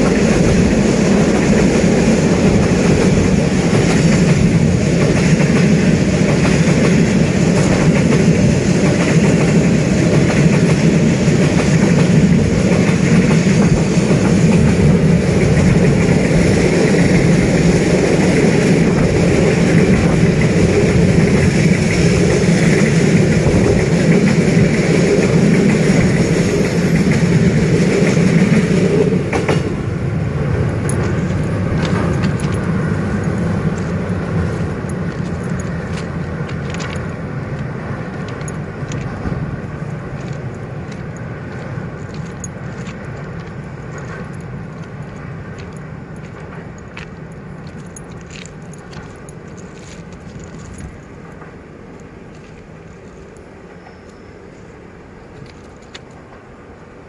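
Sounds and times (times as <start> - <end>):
train rumbling over bridge: 0.0 - 57.0
metallic clicks and clinks: 34.5 - 37.2, 38.1 - 39.2, 39.8 - 51.5.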